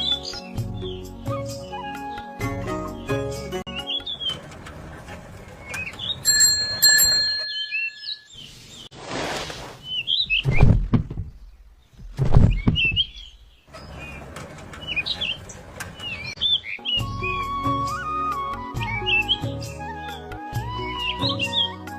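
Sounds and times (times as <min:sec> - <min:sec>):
birds chirping: 0:00.0 - 0:08.9, 0:09.8 - 0:21.9
deep loud thuds: 0:10.4 - 0:13.4.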